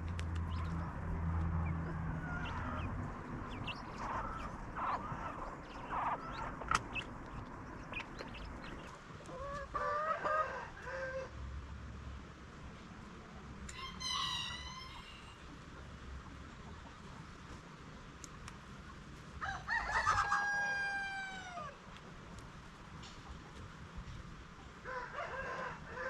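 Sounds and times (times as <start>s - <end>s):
low hum: 0.0s - 9.4s
chickens clucking: 0.3s - 11.3s, 13.6s - 17.6s, 23.0s - 23.8s.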